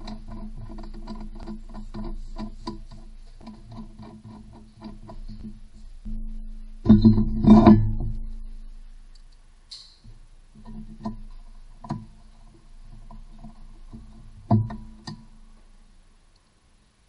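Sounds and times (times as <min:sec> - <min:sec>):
acoustic guitar music: 0:00.0 - 0:09.1.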